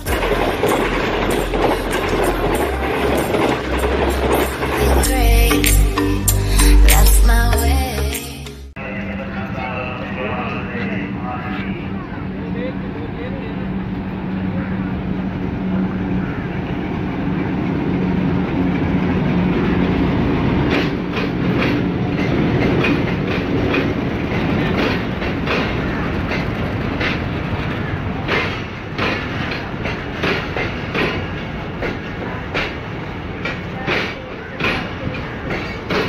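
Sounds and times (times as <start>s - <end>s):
train wheels clicking over rail joints: 0.0s - 5.1s, 17.4s - 36.0s
diesel locomotive engine droning: 0.0s - 36.0s.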